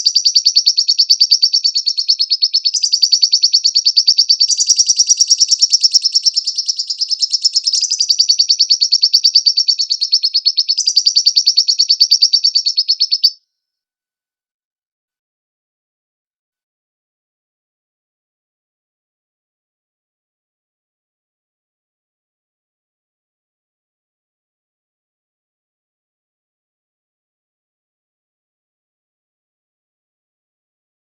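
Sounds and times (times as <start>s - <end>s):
lovebird chattering trill: 0.0s - 13.4s.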